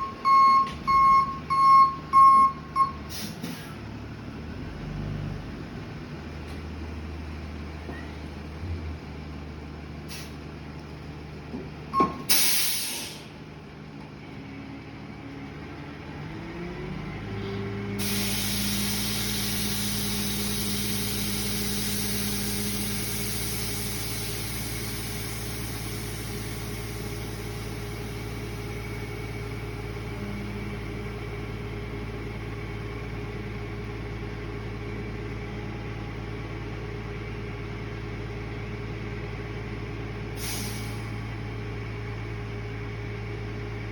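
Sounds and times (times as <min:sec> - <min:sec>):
truck engine revving: 0:00.0 - 0:10.4, 0:14.4 - 0:35.4
air hissing burst: 0:12.3 - 0:13.3, 0:18.0 - 0:28.0, 0:40.4 - 0:41.1.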